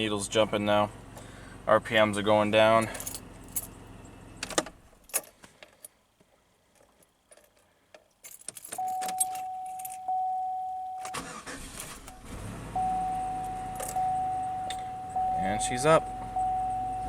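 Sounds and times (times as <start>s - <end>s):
car engine cranking with whine: 0.0s - 5.2s, 8.7s - 17.0s
keys jangling: 2.8s - 3.8s, 5.0s - 5.9s, 6.8s - 10.1s, 13.5s - 14.9s.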